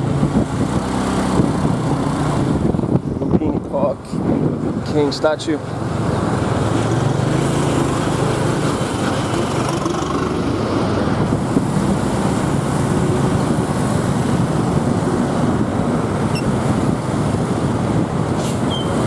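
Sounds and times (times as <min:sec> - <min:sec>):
wind and road noise: 0:00.0 - 0:19.0.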